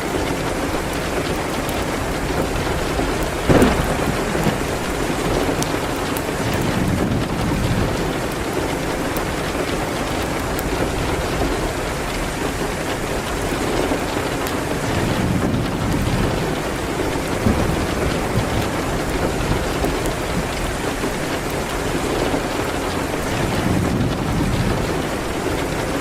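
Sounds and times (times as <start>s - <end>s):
rain hitting a window: 0.0s - 26.0s
wood fire crackling: 0.0s - 26.0s.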